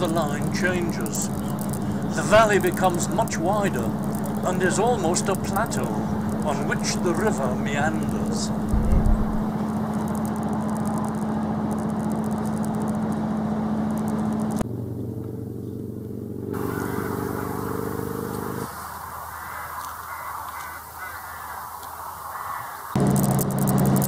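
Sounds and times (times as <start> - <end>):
faint bird calls: 0.0 - 9.5, 16.6 - 23.0
train wheels rumbling on track: 0.0 - 10.7
steady low hum: 0.0 - 23.1.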